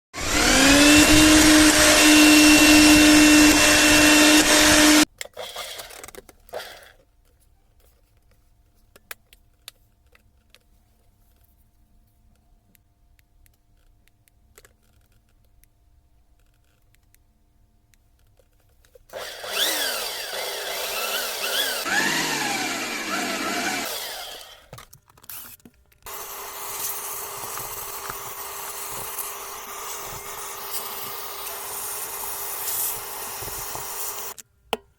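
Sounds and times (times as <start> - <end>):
power tool motor whining: 0.2 - 5.1, 19.1 - 24.7, 26.1 - 34.4.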